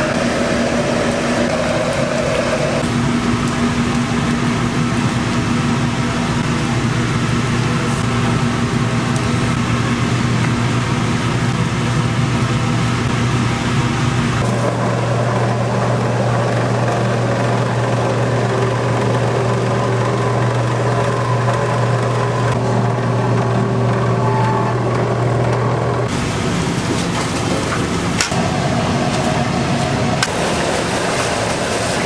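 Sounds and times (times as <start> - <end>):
kitchen machinery droning: 0.0 - 32.0.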